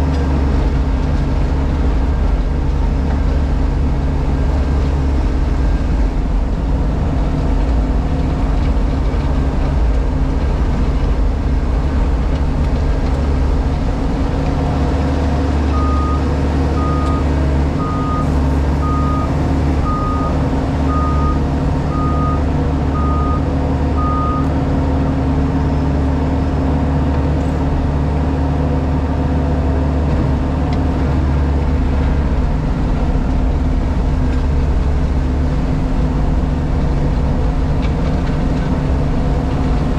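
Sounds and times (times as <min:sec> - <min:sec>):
diesel engine running: 0:00.0 - 0:39.9
reversing alarm beeps: 0:15.7 - 0:24.5.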